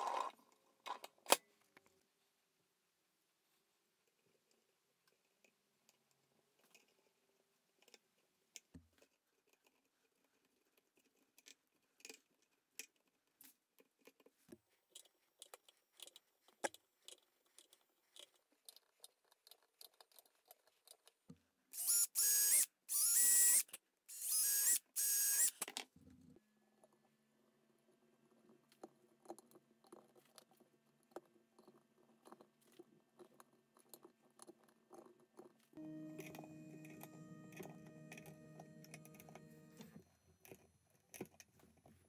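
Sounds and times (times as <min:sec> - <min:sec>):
power drill boring into wood: 0:21.8 - 0:25.6.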